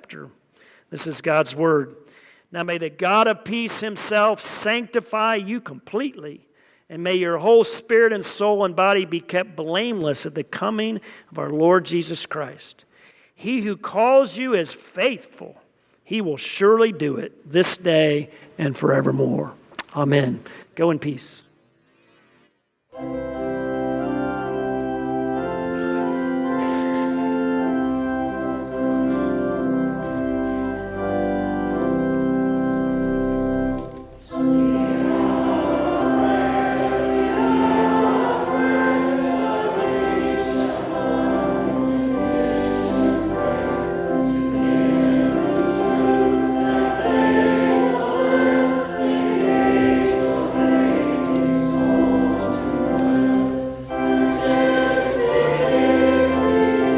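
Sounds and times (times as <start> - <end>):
church organ chords: 22.9 - 56.9
choir singing: 23.0 - 56.9.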